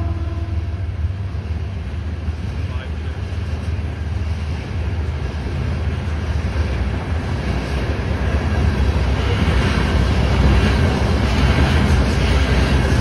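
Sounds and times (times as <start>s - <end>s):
steel wheels rumbling on rails: 0.0s - 13.0s
wind noise on microphone: 10.2s - 13.0s.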